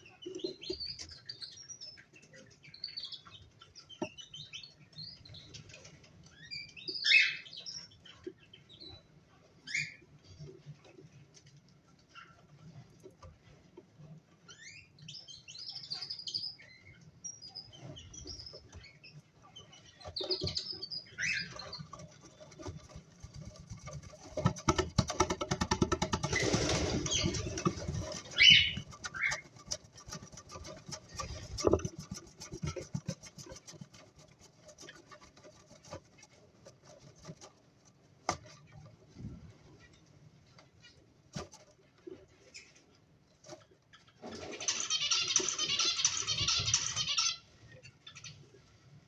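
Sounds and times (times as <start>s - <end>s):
cockatiels chirping: 6.4s - 8.2s, 15.5s - 22.6s, 26.3s - 29.5s, 44.7s - 47.4s
wing flapping and rustling: 19.8s - 47.2s.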